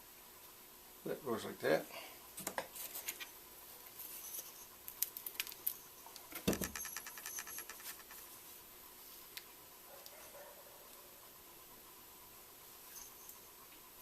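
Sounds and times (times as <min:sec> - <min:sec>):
metal parts clicking and scraping: 0:04.4 - 0:08.3.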